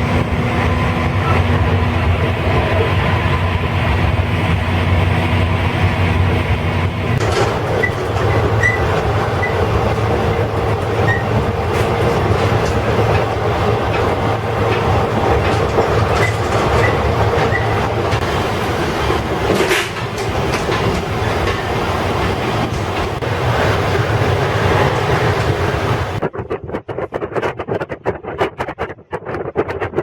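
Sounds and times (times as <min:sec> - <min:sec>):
train wheels rumbling on track: 0:00.0 - 0:29.7
high wheel squeaks: 0:07.2 - 0:26.2.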